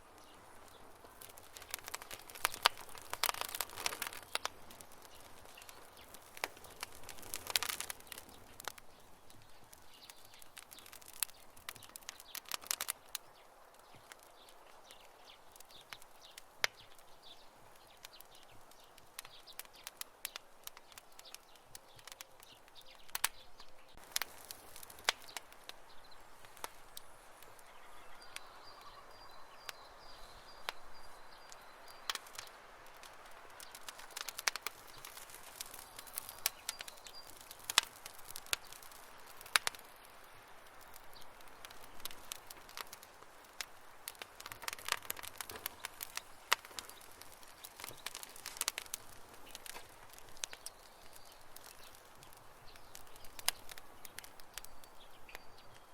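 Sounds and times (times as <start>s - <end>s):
campfire crackling and popping: 0.0s - 55.9s.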